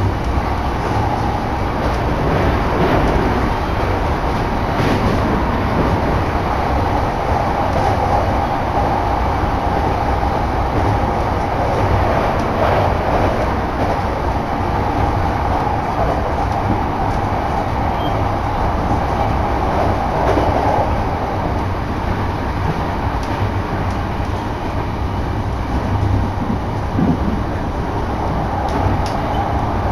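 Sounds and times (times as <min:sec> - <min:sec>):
train wheels rumbling on rails: 0:00.0 - 0:29.9.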